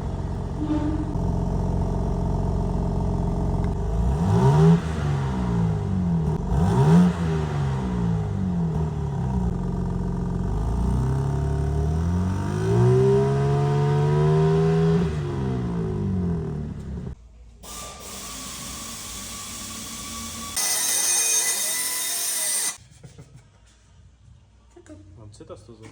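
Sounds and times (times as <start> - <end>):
car engine revving: 3.6 - 17.2.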